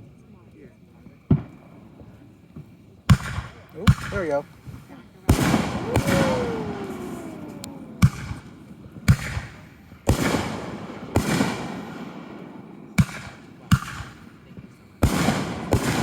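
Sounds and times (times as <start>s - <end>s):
fireworks exploding: 1.3s - 16.0s
falling firework whistle: 5.3s - 9.6s.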